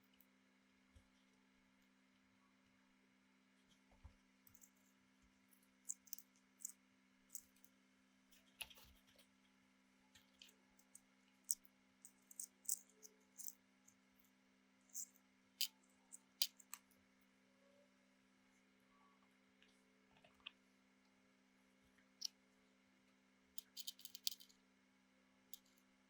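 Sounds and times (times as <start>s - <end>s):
faint small clicks: 3.6s - 4.9s, 5.9s - 13.6s, 15.0s - 17.0s, 23.6s - 24.6s, 25.5s - 25.8s.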